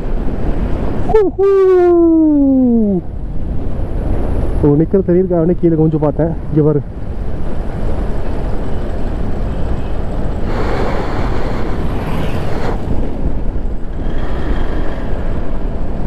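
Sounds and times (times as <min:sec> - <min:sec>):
wind buffeting microphone: 0:00.0 - 0:16.0
motorbike engine and road noise: 0:06.8 - 0:16.0.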